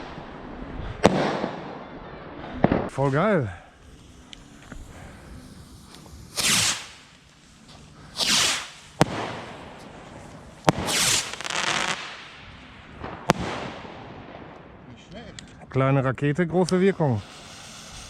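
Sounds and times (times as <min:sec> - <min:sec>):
firework launch whooshes: 0:00.0 - 0:01.7, 0:02.6 - 0:14.0, 0:16.8 - 0:18.0
firework bangs: 0:00.0 - 0:02.0, 0:02.6 - 0:14.7.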